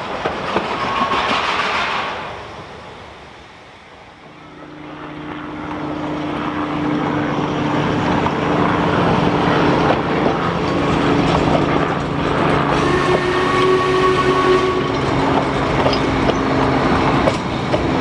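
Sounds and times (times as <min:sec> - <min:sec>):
train running: 0:00.0 - 0:18.0.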